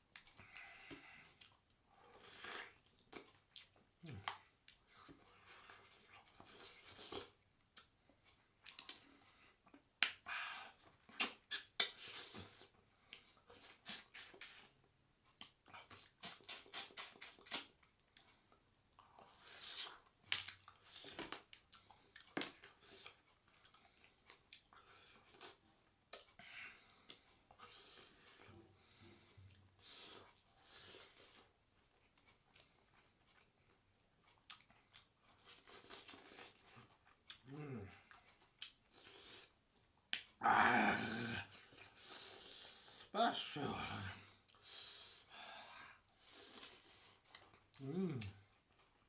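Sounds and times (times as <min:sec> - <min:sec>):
person chewing food: 0:00.1 - 0:10.2, 0:10.8 - 0:43.1, 0:44.2 - 0:49.0.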